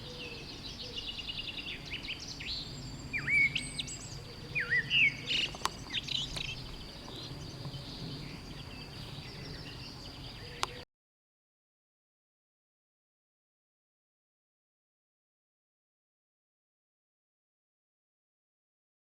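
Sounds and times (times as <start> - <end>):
constant high-pitched buzz: 0.0 - 10.8
swooping whistled bird calls: 0.0 - 10.8
wild birds chirping and singing: 0.0 - 10.9.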